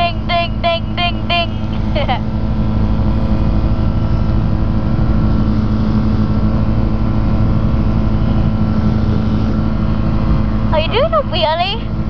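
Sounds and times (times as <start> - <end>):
ultralight aircraft engine and propeller: 0.0 - 12.0.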